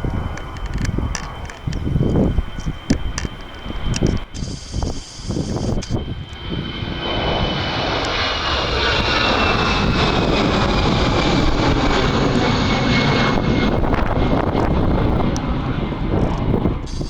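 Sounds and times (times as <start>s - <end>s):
high whine falling in pitch: 0.0s - 8.3s, 16.8s - 17.0s
jet engine roar: 0.0s - 17.0s.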